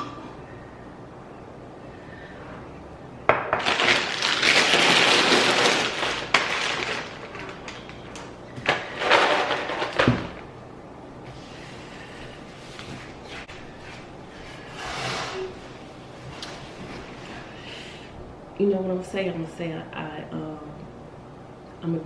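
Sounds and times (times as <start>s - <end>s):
food packaging crinkling: 3.6s - 10.0s.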